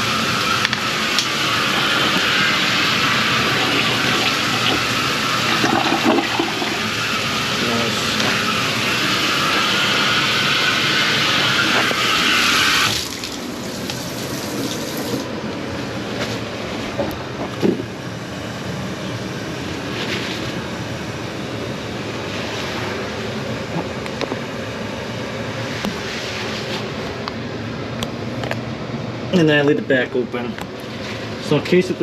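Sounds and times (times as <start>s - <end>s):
water running from a tap: 0.0s - 15.3s.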